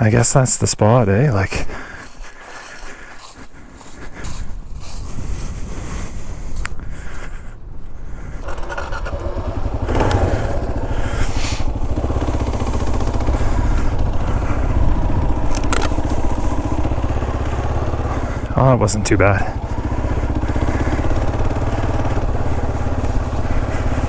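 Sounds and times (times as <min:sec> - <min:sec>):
motorcycle engine running: 0:08.2 - 0:24.0.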